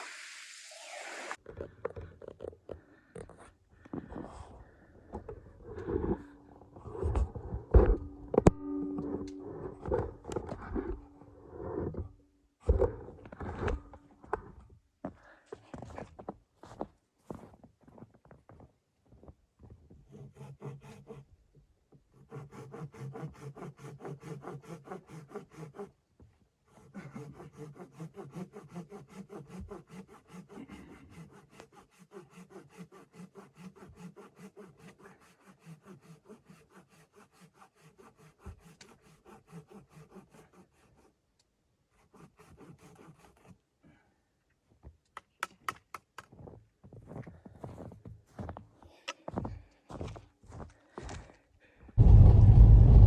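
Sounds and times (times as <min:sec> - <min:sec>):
hand saw cutting wood: 0:05.6 - 0:14.0, 0:20.1 - 0:21.4, 0:22.0 - 0:26.0, 0:26.6 - 0:41.3, 0:41.9 - 0:43.6.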